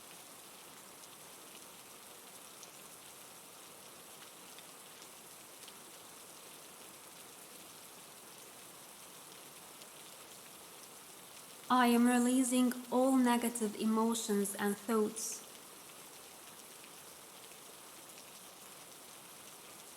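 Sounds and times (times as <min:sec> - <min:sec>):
raindrops pattering: 0:00.0 - 0:19.9
rain hissing: 0:08.6 - 0:19.9.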